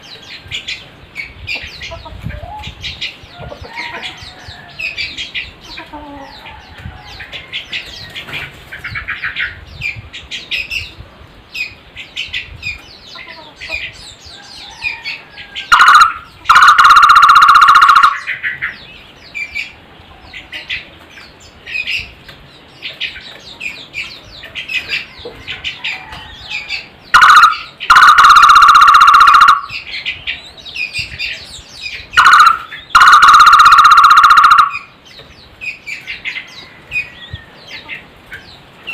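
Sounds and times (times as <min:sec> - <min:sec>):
small birds chirping: 0:00.0 - 0:38.9
barbet call with fast trill: 0:15.7 - 0:18.3, 0:27.2 - 0:29.8, 0:32.2 - 0:34.9.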